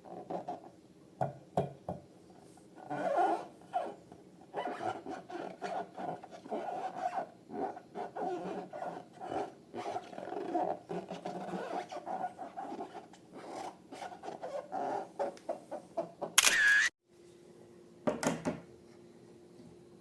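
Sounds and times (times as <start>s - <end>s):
rubbery squeaking: 2.8s - 15.5s.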